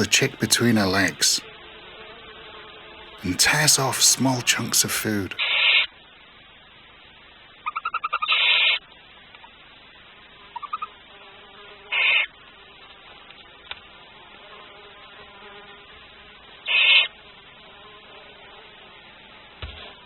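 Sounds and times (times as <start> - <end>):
owl hissing calls: 3.2 - 5.9, 7.6 - 8.9, 10.5 - 11.0, 11.9 - 12.3, 16.7 - 17.2.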